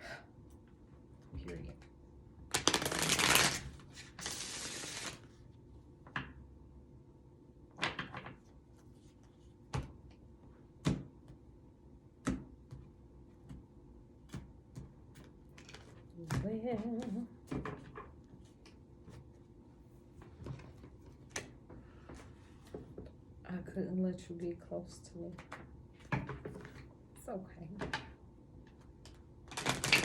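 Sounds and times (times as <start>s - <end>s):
cards shuffling: 2.5s - 5.3s, 15.2s - 16.0s, 29.5s - 30.0s.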